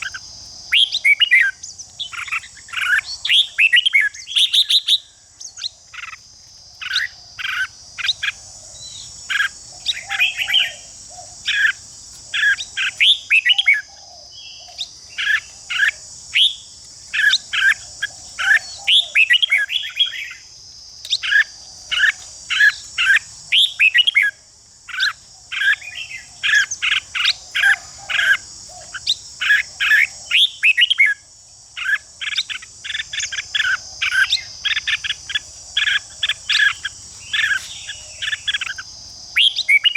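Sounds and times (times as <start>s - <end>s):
high insect buzz: 0.0s - 39.9s
bulbul song: 12.4s - 31.2s.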